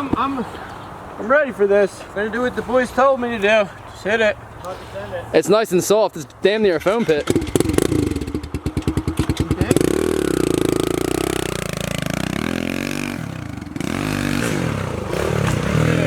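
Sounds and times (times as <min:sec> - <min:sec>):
motorbike engine revving: 0:07.0 - 0:16.0.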